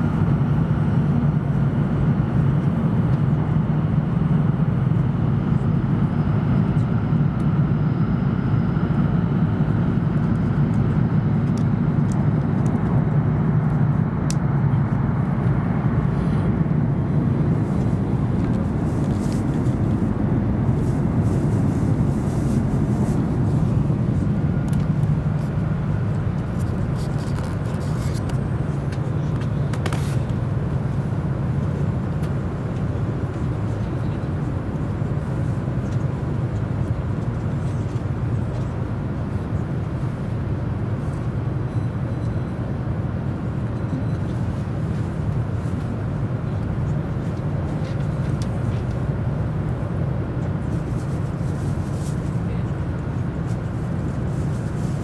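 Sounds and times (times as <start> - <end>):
train wheels rumbling on rails: 0.0 - 55.0
rushing air: 13.2 - 28.8.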